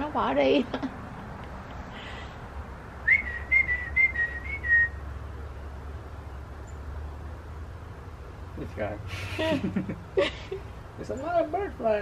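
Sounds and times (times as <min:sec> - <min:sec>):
bird whistling: 0:03.0 - 0:05.0.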